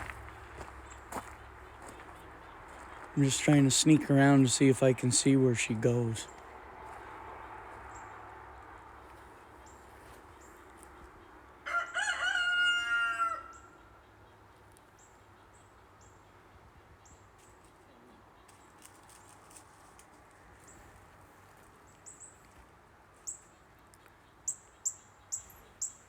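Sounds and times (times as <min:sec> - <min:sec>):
rooster crowing: 0:11.6 - 0:13.9.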